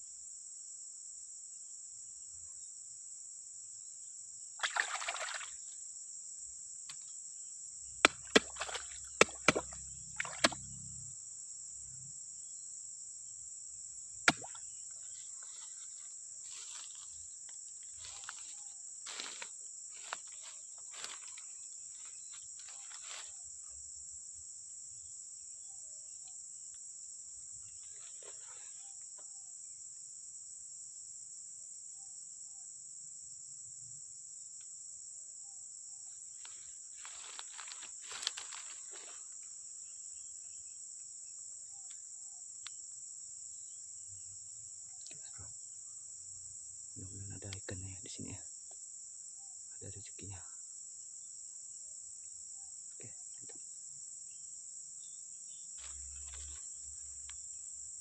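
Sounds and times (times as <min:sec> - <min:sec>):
crickets and insects chirping: 0:00.0 - 0:58.0
rustling and handling noises: 0:36.4 - 0:39.2.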